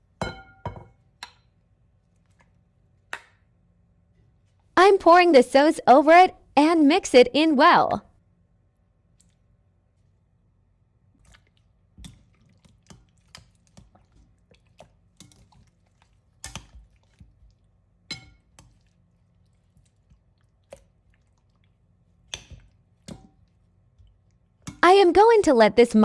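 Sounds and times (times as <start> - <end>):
wet squelching of chicken in sauce: 9.1 - 10.3, 11.1 - 24.8.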